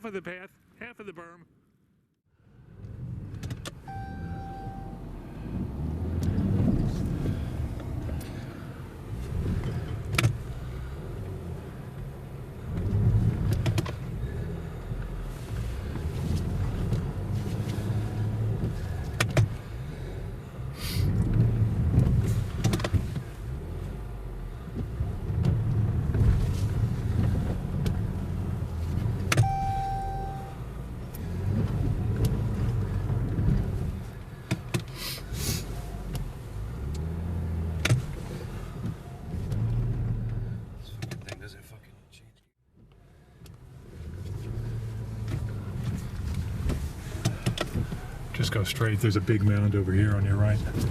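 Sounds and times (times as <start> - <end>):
short beep: 3.8 - 5.0, 29.4 - 30.6
car engine revving: 3.9 - 41.0.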